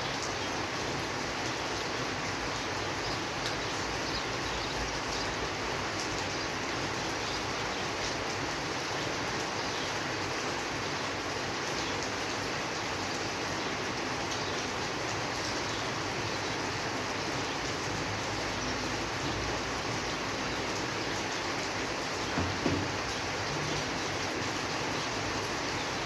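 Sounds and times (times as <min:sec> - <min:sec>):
steady rainfall: 0:00.0 - 0:26.0
low knocks: 0:22.3 - 0:23.3.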